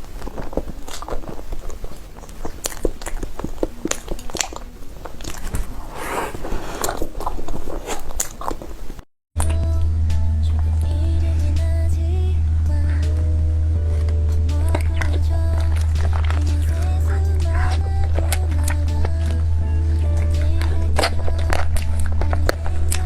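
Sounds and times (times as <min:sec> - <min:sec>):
biting and chewing food: 0:00.0 - 0:09.5, 0:13.8 - 0:23.0
music with deep bass: 0:09.4 - 0:23.0.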